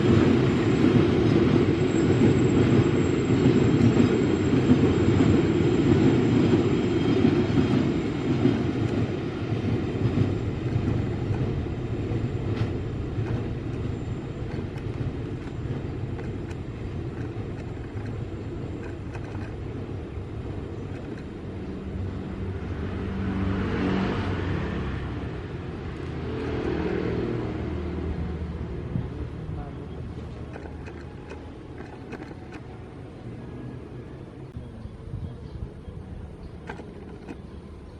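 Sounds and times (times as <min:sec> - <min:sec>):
train passing on rails: 0:00.0 - 0:37.9
motor vehicle passing: 0:09.0 - 0:34.3.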